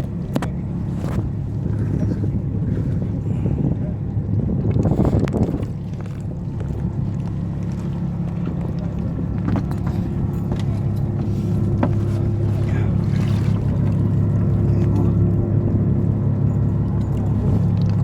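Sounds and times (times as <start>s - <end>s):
boat engine humming: 0.0s - 18.0s
light clicks and knocks: 8.7s - 12.4s.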